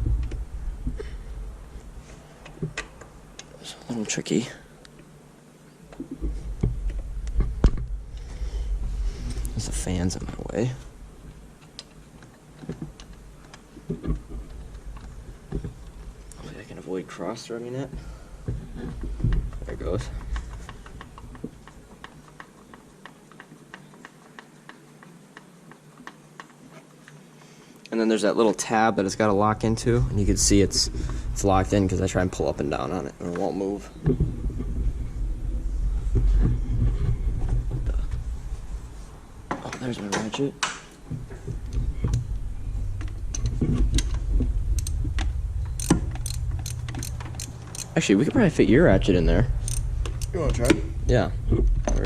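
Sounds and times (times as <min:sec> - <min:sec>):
steady low hum: 0:00.0 - 0:23.8, 0:28.7 - 0:52.0
ratchet wrench clicking: 0:44.8 - 0:45.0, 0:45.8 - 0:48.0, 0:49.6 - 0:50.7.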